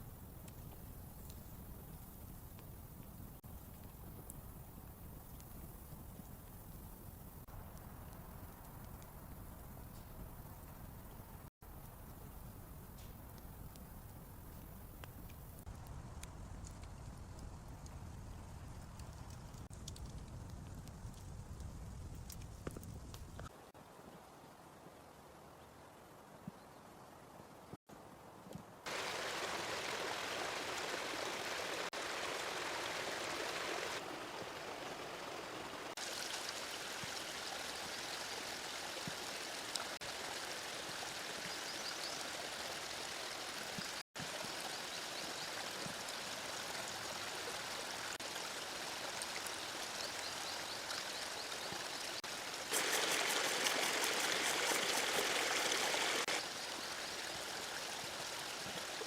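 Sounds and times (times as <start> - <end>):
river water rushing: 28.9 - 37.0, 52.3 - 56.4.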